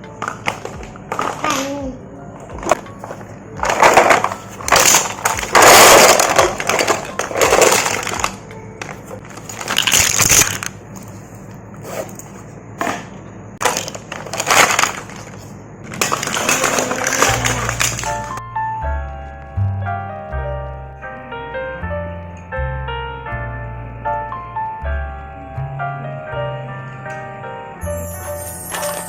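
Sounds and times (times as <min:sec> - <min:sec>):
loud crackling crunching: 0:02.7 - 0:11.4, 0:13.6 - 0:18.4.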